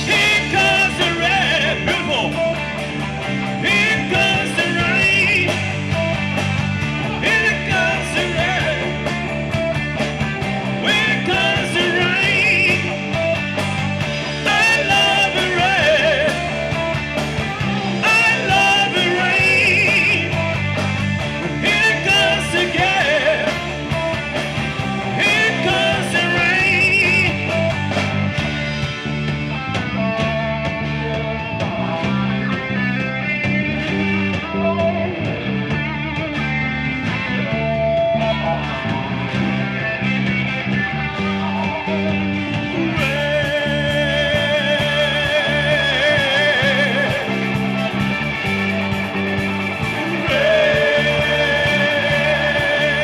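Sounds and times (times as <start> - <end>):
bass line: 0.0 - 53.0
drums: 0.0 - 53.0
electric guitar: 0.0 - 53.0
person singing: 3.6 - 5.8, 10.8 - 13.1, 14.4 - 16.6, 18.0 - 20.6, 21.6 - 23.8, 24.9 - 27.7, 42.7 - 47.5, 49.9 - 53.0.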